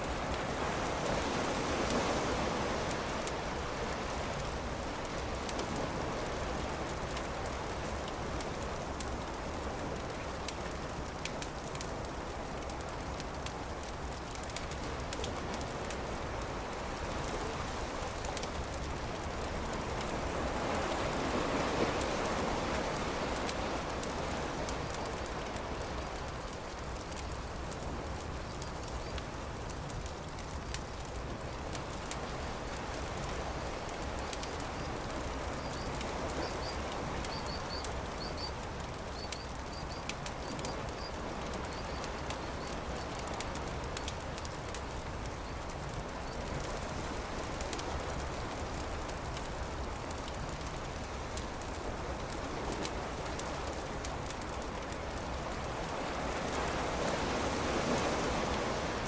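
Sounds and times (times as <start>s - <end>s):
campfire crackling and popping: 0.0s - 58.8s
small bird chirping: 35.6s - 38.5s.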